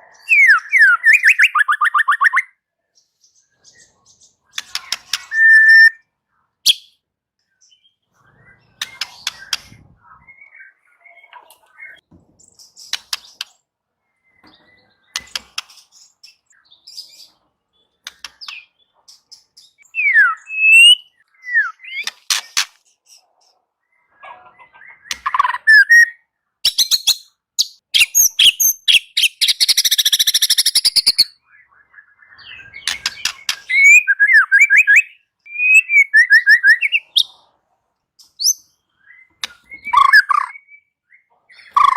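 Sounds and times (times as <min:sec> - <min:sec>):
bird clicking and whistling song: 0:00.3 - 0:02.6, 0:04.4 - 0:06.0, 0:06.7 - 0:07.0, 0:08.6 - 0:09.8, 0:12.6 - 0:13.6, 0:14.4 - 0:16.6, 0:18.0 - 0:22.8, 0:24.9 - 0:31.3, 0:32.4 - 0:37.4, 0:38.2 - 0:40.8, 0:41.6 - 0:41.9.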